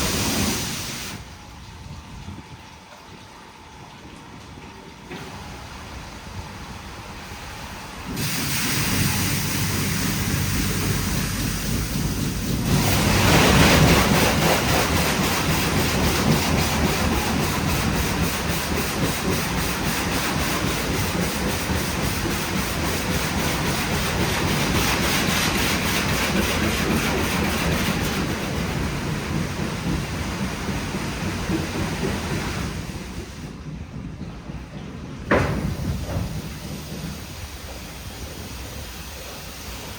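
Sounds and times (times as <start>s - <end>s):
high-pressure water jets spraying car: 0.0s - 1.2s, 8.1s - 28.5s.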